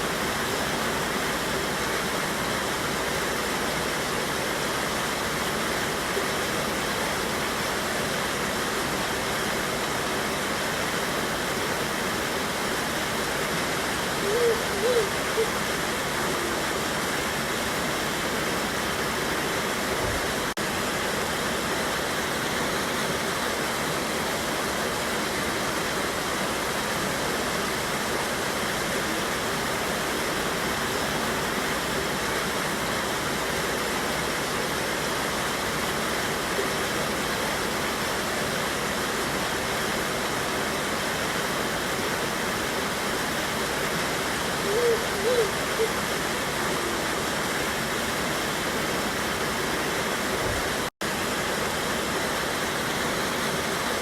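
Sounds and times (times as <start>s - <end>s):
small waterfall rushing: 0.0s - 54.0s.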